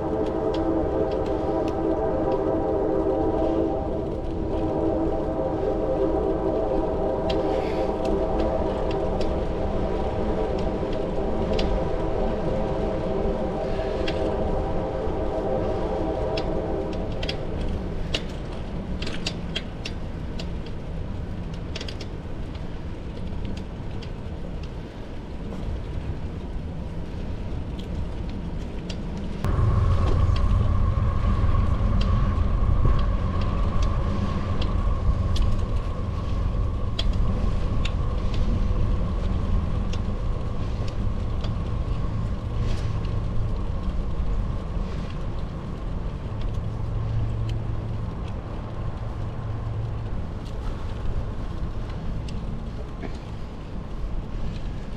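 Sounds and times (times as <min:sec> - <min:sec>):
train horn: 0:00.0 - 0:19.4, 0:29.4 - 0:45.2
steady hum: 0:00.0 - 0:19.5, 0:29.3 - 0:54.9
bicycle tyre rumble: 0:00.0 - 0:54.9
wind on microphone: 0:00.0 - 0:54.9.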